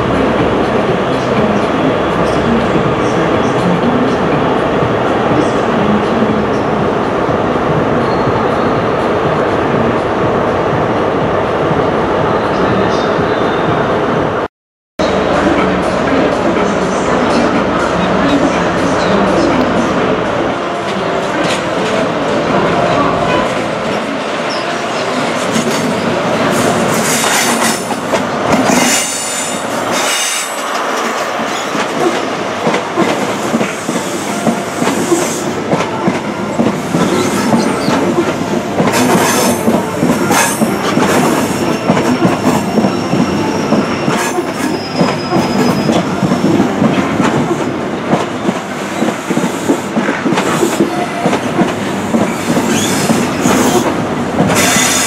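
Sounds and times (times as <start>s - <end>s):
high wheel squeal: 40.2s - 46.2s, 52.3s - 53.8s.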